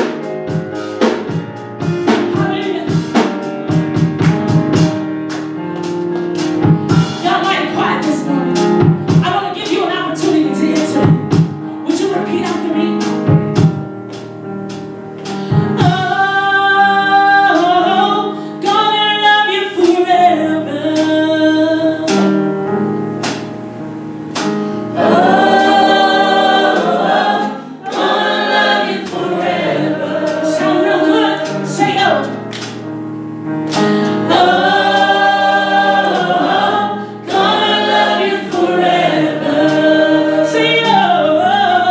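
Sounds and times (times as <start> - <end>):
band with drum hits: 0.0 - 16.2, 23.2 - 32.9, 33.7 - 40.2
vocal group singing in harmony: 24.9 - 32.4, 33.7 - 41.9.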